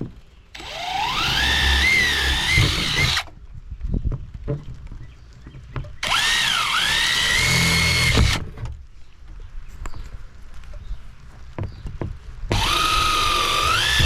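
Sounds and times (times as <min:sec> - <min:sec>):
power drill whining: 0:00.6 - 0:03.3, 0:06.0 - 0:08.4, 0:12.5 - 0:14.0.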